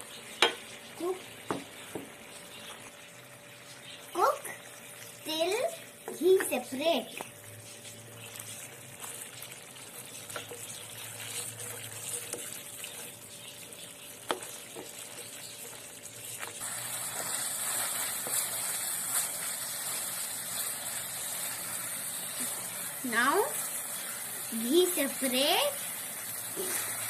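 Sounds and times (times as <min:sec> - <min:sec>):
food sizzling in a pot: 0:00.0 - 0:27.0
wooden spoon stirring and scraping: 0:07.2 - 0:24.4.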